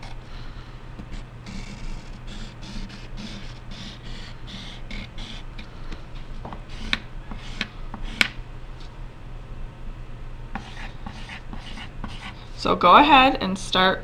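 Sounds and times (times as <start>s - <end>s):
pencil drawing on paper: 0.0s - 8.4s, 10.6s - 12.6s.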